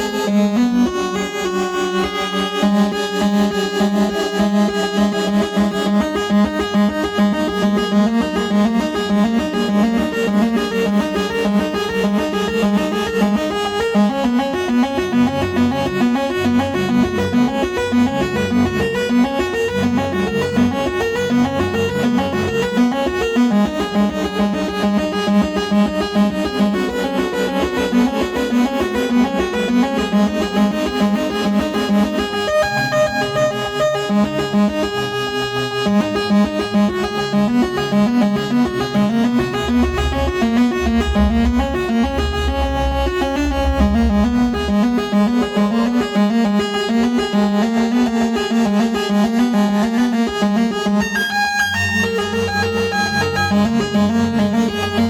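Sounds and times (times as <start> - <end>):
synthesizer sequence of short notes: 37.2 - 46.4.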